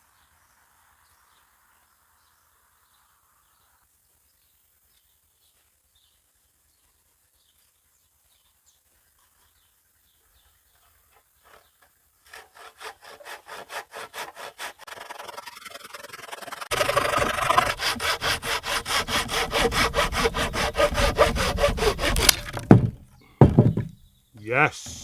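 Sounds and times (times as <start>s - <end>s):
hand saw cutting wood: 11.4s - 25.0s.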